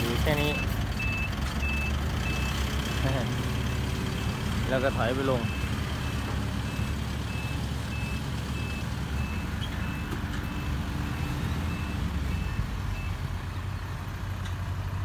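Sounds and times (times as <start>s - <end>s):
diesel engine rumble: 0.0s - 15.0s
reverse alarm beeping: 4.8s - 13.2s.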